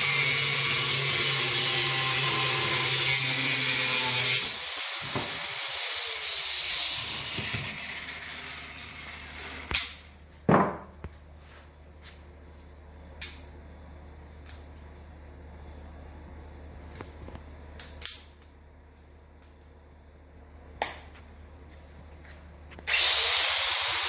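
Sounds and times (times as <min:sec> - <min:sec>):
power grinder grinding steel: 0:00.0 - 0:09.7, 0:22.9 - 0:24.0
motor winding down: 0:22.9 - 0:24.0.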